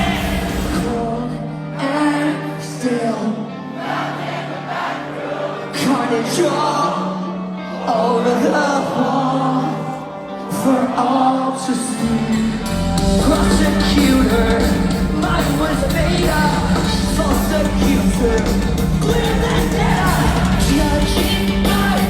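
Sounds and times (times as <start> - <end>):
live rock band playing: 0.0 - 3.7, 5.8 - 22.0
several voices singing: 0.0 - 22.0
deep bass: 12.4 - 22.0.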